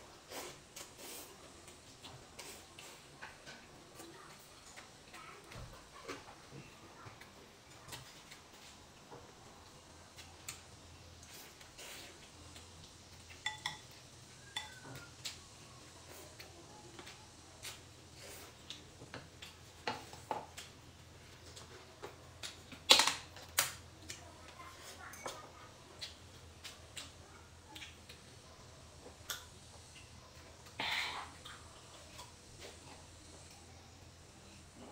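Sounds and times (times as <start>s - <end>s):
chopsticks clinking on ceramic bowls: 13.3s - 14.9s.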